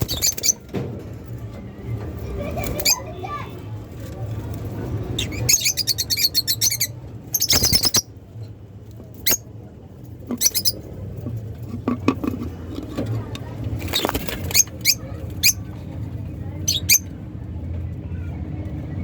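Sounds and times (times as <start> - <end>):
lovebirds chirping: 0.0 - 0.6, 5.1 - 8.1, 9.2 - 9.4, 10.3 - 10.8, 16.5 - 17.1.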